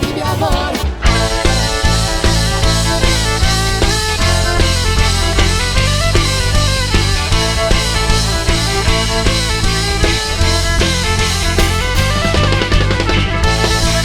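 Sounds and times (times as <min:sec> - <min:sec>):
bass and pitched instruments: 0:00.0 - 0:14.0
drum kit steady beat: 0:00.0 - 0:14.0.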